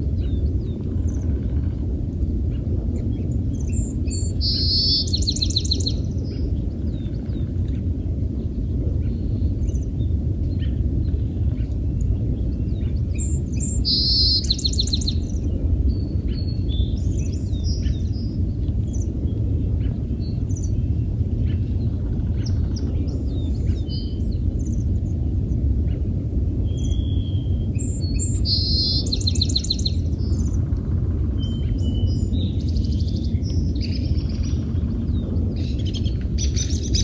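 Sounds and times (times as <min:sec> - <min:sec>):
low background rumble: 0:00.0 - 0:37.0
small birds chirping: 0:02.5 - 0:08.0, 0:09.0 - 0:24.9, 0:26.7 - 0:30.6
bird trill: 0:04.2 - 0:05.9, 0:13.2 - 0:15.2, 0:26.8 - 0:29.9.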